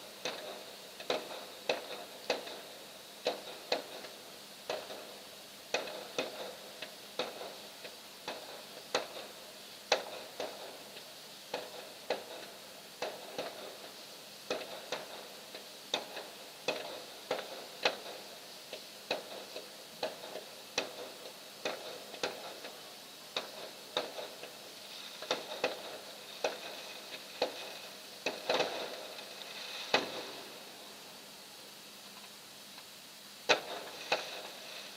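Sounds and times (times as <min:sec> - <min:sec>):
fireworks popping: 0:00.0 - 0:31.2, 0:32.2 - 0:34.9.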